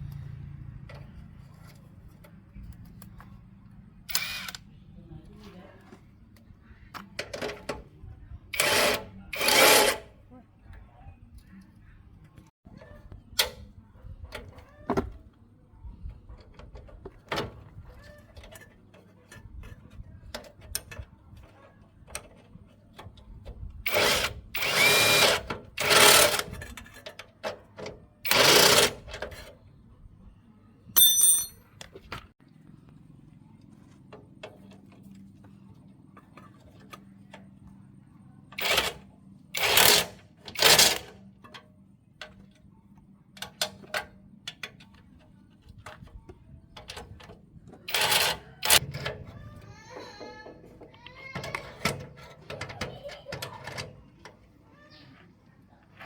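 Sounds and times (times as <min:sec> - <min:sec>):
tool handling clicks and knocks: 0:39.6 - 0:54.4.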